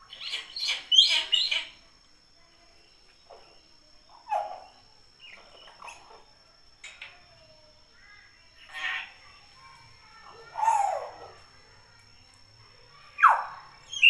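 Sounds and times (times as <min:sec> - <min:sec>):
myna bird calling: 0:00.0 - 0:01.8.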